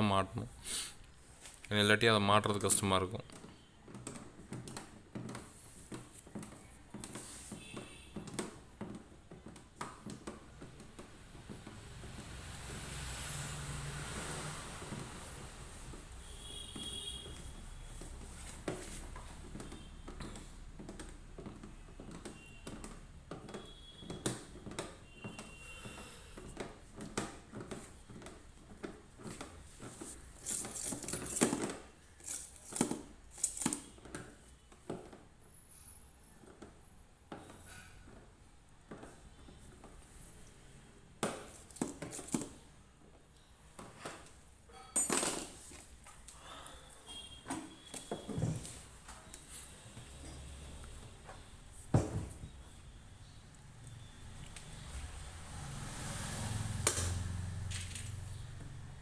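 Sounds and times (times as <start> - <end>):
faint squeaks: 35.4 - 38.1
metal parts knocking and clinking: 44.7 - 45.6.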